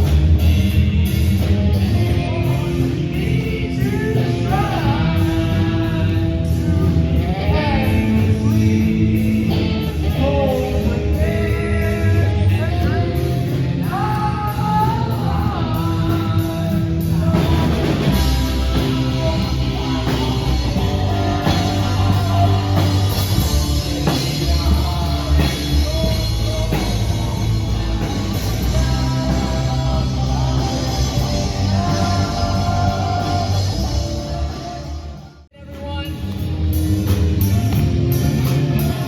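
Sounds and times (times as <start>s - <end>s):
person singing: 0.0s - 36.5s
rock band playing: 0.0s - 39.0s.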